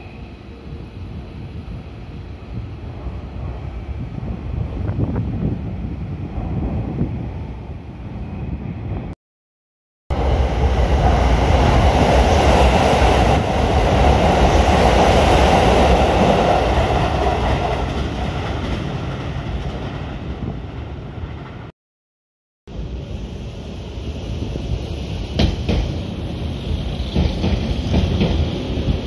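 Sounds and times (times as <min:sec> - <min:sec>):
electric train passing: 0:10.1 - 0:21.7, 0:22.7 - 0:29.0.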